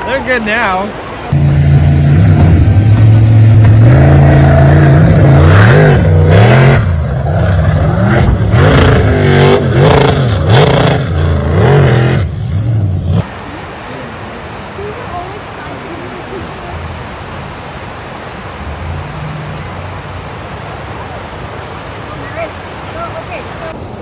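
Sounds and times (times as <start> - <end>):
engine revving: 1.3 - 13.3.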